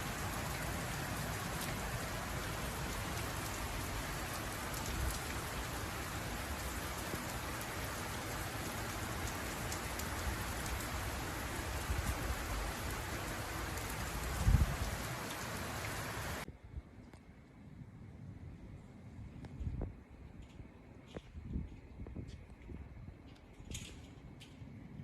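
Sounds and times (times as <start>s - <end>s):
heavy rain falling: 0.0s - 16.4s.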